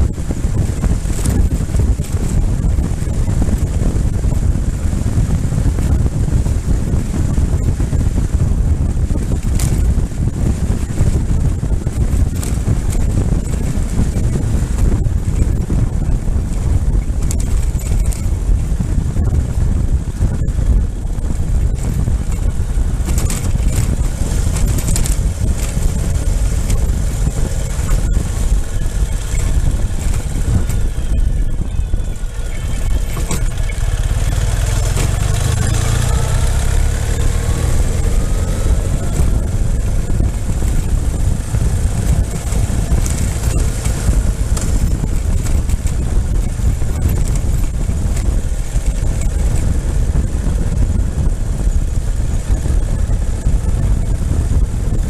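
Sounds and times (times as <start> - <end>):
motorcycle engine running: 0.0 - 55.0
wind noise on microphone: 0.0 - 55.0
whine rising in pitch: 23.8 - 45.0.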